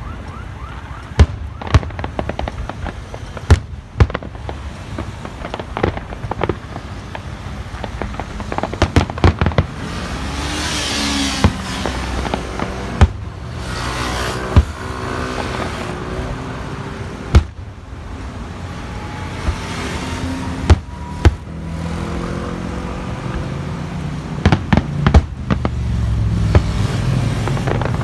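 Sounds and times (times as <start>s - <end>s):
firework cracks: 0.0s - 18.6s, 24.1s - 28.0s
dense crackling hiss: 0.2s - 20.4s, 23.6s - 28.0s
firework shells bursting: 1.1s - 16.4s, 24.4s - 28.0s.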